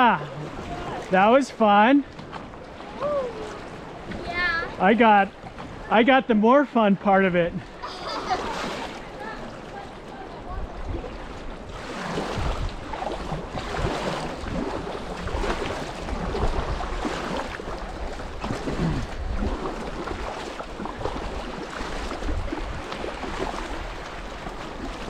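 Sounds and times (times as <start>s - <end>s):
creek water splashing: 0.0s - 25.0s
wind rumbling on microphone: 9.2s - 25.0s.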